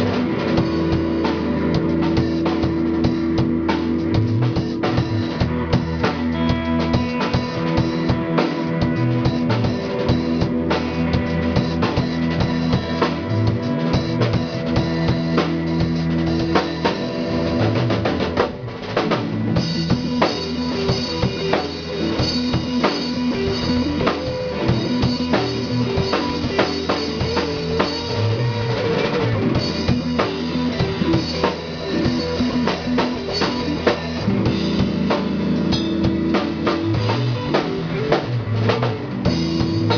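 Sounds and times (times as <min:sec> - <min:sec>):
held bass notes: 0:00.0 - 0:39.9
live band playing loudly: 0:00.0 - 0:39.9.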